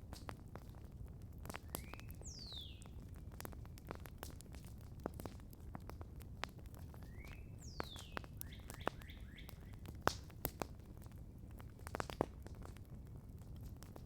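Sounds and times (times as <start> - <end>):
campfire crackling and popping: 0.0 - 14.0
bird singing: 1.7 - 2.9, 7.0 - 9.8.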